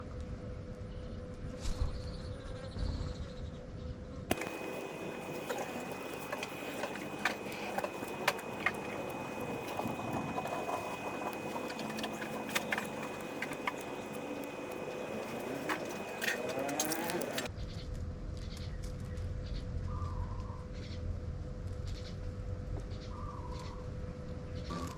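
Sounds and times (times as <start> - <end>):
birds pecking at feed: 4.3 - 17.5
steady hiss: 4.3 - 17.5.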